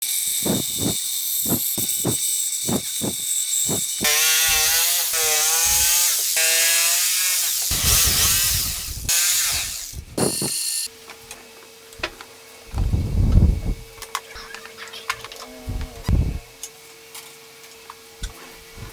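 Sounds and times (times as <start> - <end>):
power tool whining: 0.2 - 10.9
rough rasping: 0.4 - 10.9.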